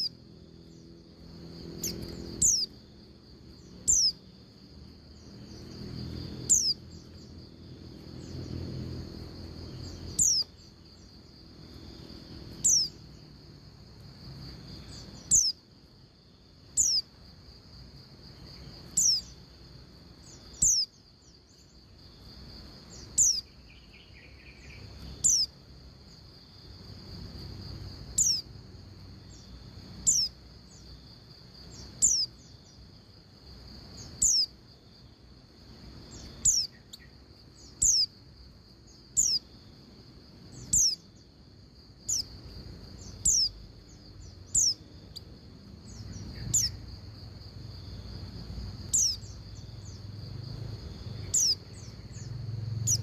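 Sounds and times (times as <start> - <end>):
bird high-pitched falling calls: 1.8 - 2.7, 3.8 - 4.2, 6.5 - 6.8, 12.6 - 13.0.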